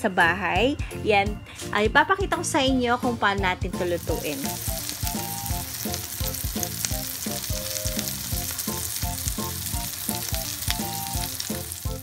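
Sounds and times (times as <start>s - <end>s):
background music with beat: 0.0s - 12.0s
patties sizzling in oil: 3.8s - 12.0s.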